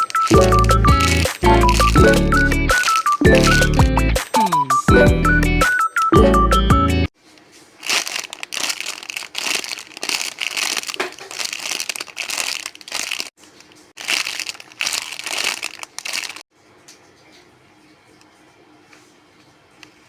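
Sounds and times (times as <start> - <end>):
plastic wrapping crinkling: 0.0 - 3.9, 7.2 - 16.4.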